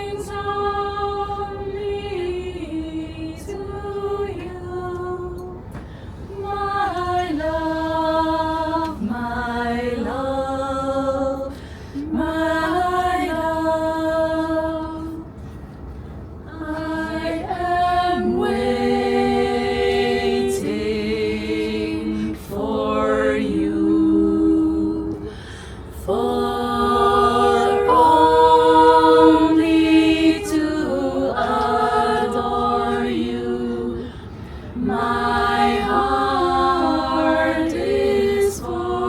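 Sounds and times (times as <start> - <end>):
choir singing a cappella: 0.0 - 15.6, 16.4 - 39.0
steady low rumble: 0.0 - 39.0.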